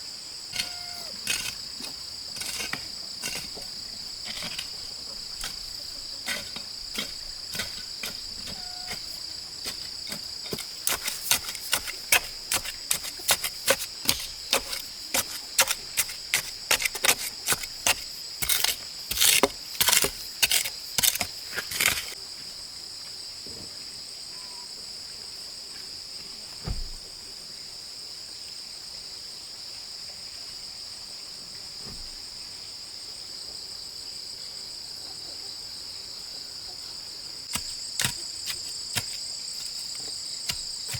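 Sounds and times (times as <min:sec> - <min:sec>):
insects chirring: 0:00.0 - 0:23.3, 0:35.6 - 0:40.9.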